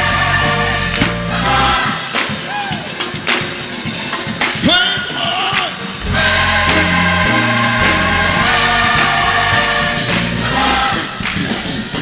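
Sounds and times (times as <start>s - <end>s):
low bass line: 0.0s - 1.8s, 6.0s - 10.9s
gospel choir singing: 0.0s - 4.0s, 4.9s - 12.0s.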